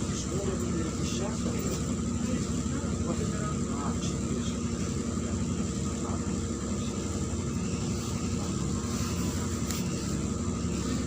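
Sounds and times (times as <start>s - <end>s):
bus engine droning: 0.0s - 11.0s
road rumble: 0.0s - 11.0s.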